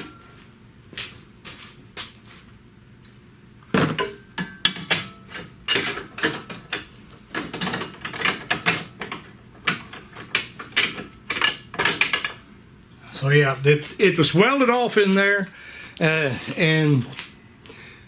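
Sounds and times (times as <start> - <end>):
metal hand tools clanking: 3.9 - 12.4.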